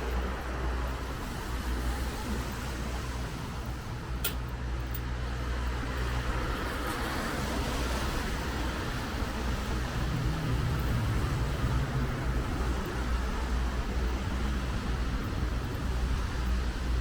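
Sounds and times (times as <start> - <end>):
road noise: 0.0 - 17.0
vehicle engine droning: 0.0 - 17.0.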